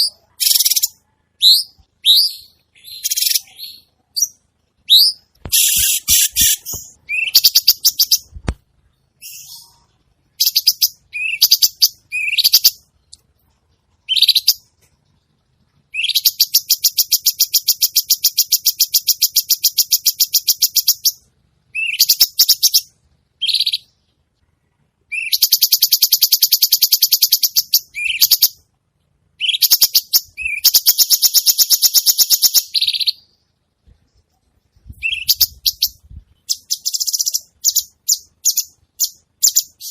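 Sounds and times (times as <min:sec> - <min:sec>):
songbird fast trills: 0:00.0 - 0:08.3
songbird chirps and whistles: 0:00.0 - 0:15.0, 0:15.8 - 0:28.6, 0:29.4 - 0:39.9.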